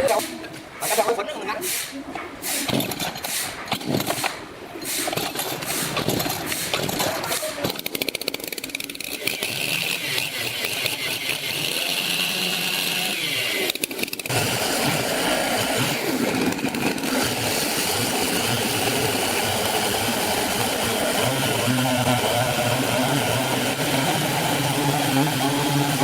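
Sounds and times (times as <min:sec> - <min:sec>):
engine-driven wood saw running: 0:05.3 - 0:26.0.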